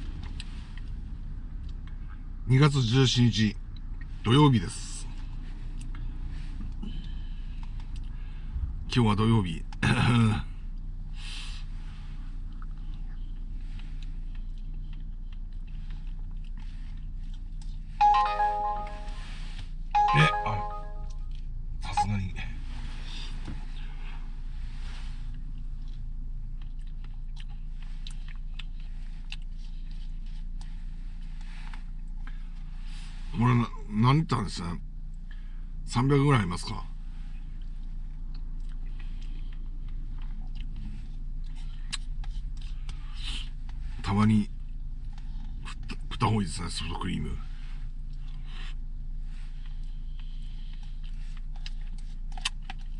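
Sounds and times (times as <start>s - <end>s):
person eating ice cream: 12.4s - 17.9s, 25.3s - 32.3s, 37.5s - 43.8s, 48.0s - 52.9s
electronic chime: 18.0s - 19.2s, 20.0s - 21.1s.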